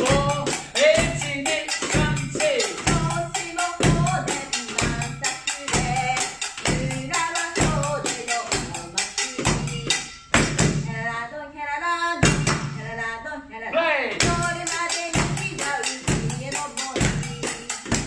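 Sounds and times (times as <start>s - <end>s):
person singing: 0.0s - 10.0s, 10.6s - 18.0s
metallic scraping accents: 0.0s - 11.1s.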